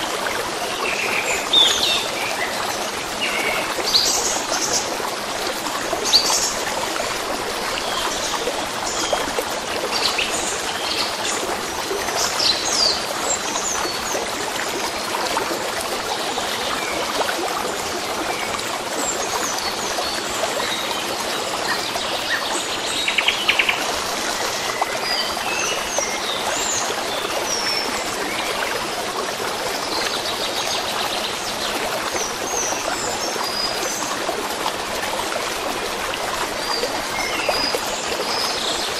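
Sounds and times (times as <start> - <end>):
stream running: 0.0 - 38.9.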